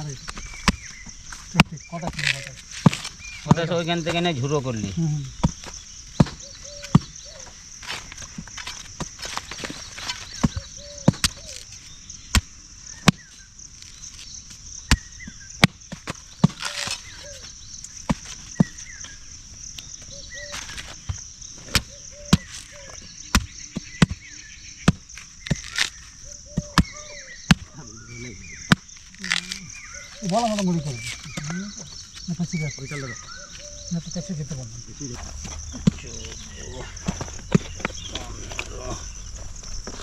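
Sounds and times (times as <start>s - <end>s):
blade chopping fruit: 23.3s - 27.7s.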